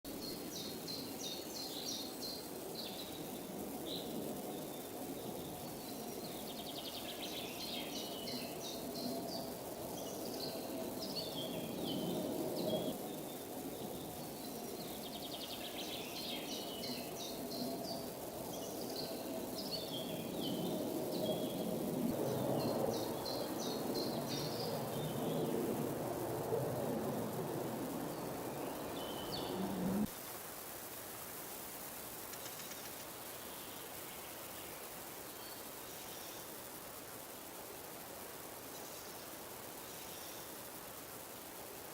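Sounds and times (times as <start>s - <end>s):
songbird singing: 0.1s - 30.1s
low background rumble: 16.1s - 30.1s.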